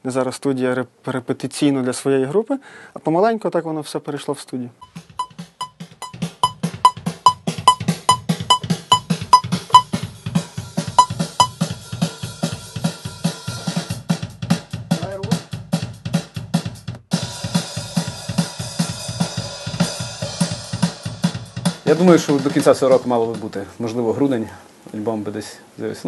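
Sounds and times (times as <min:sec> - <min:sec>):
drum kit fast beat: 0:04.8 - 0:23.6.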